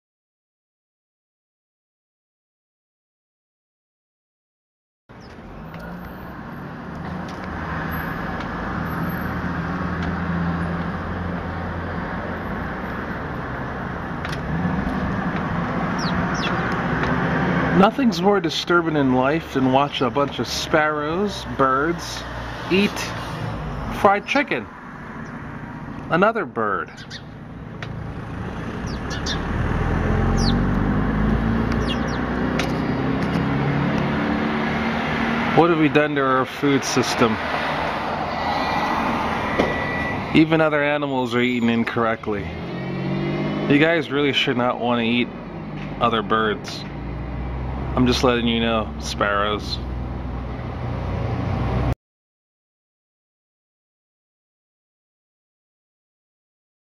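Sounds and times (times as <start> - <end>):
sparrows chirping: 5.1 - 5.8, 15.8 - 16.9, 25.1 - 26.1, 26.8 - 33.4
road traffic rushing: 5.1 - 52.0
engine low hum: 5.2 - 35.8
low motor hum: 27.1 - 34.2.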